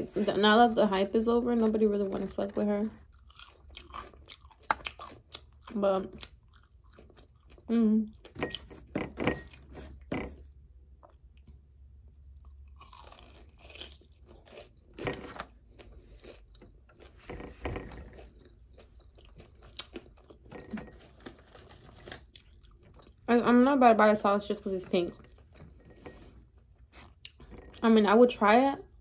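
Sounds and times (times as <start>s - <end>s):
crunchy chewing: 2.9s - 7.7s, 12.2s - 20.5s, 21.1s - 23.3s.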